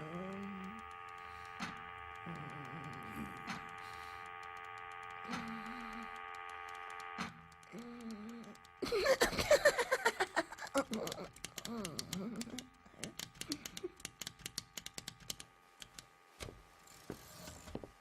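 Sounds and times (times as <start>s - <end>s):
warbling mechanical tones: 0.0s - 14.3s
sharp clicks: 0.0s - 16.5s
electrical hum: 0.0s - 18.0s.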